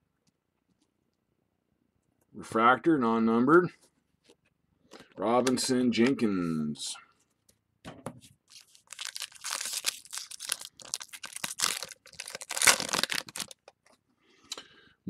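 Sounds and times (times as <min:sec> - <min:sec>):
wrapper being torn and crinkled: 0:08.5 - 0:13.9.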